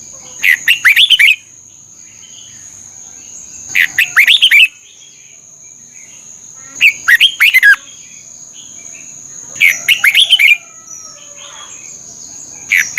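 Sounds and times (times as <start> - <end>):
bird singing whistled notes: 0.5 - 2.7, 3.5 - 6.1, 6.8 - 9.0, 9.6 - 12.9.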